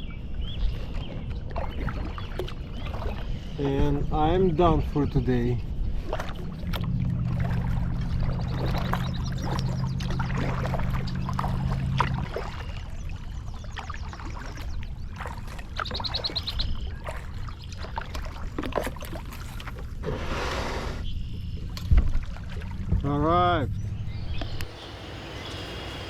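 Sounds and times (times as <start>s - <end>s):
water sloshing with knocks: 0.8s - 5.2s, 5.9s - 20.3s, 21.3s - 24.7s
propeller motor humming: 2.6s - 15.0s, 21.1s - 26.0s.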